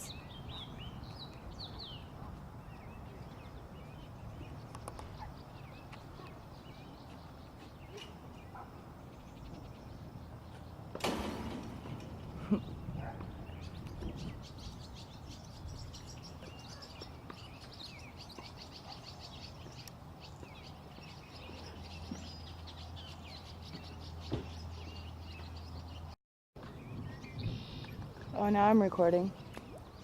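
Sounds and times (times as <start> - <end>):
small birds chirping: 0.0 - 11.0, 11.9 - 30.0.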